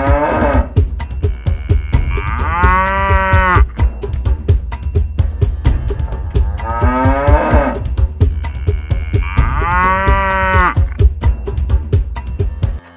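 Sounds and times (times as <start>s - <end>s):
electronic toy cow mooing: 0.0s - 3.7s, 6.6s - 10.9s.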